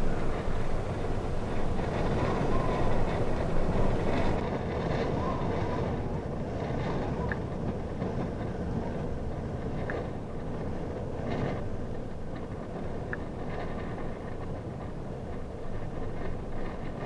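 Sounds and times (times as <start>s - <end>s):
low rumbling noise: 0.0s - 4.4s.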